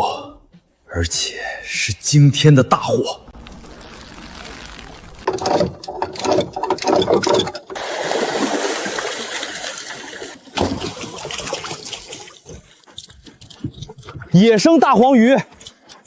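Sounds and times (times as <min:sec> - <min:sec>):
water splashing: 0:03.2 - 0:12.8
rush of water: 0:07.8 - 0:12.2.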